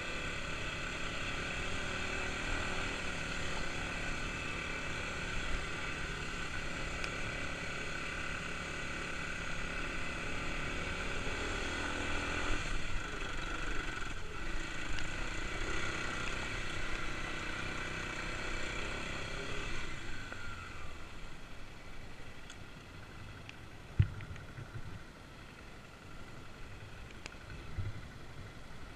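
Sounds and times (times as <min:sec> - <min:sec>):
dirt bike engine running: 0:00.0 - 0:21.4.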